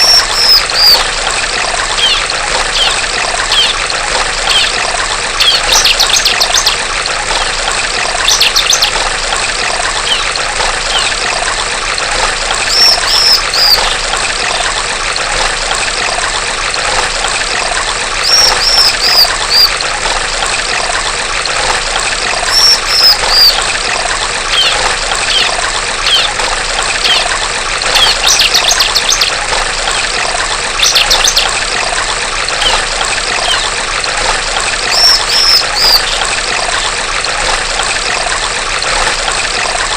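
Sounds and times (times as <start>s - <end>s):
bird chirping: 0.0s - 1.0s, 2.0s - 3.8s, 4.5s - 4.8s, 10.0s - 10.3s, 12.7s - 13.9s, 18.2s - 19.7s, 22.5s - 23.6s, 24.6s - 25.5s, 27.0s - 27.3s, 28.0s - 29.3s, 30.8s - 31.5s, 33.4s - 33.7s, 34.9s - 36.2s
stream water trickling: 0.0s - 39.9s.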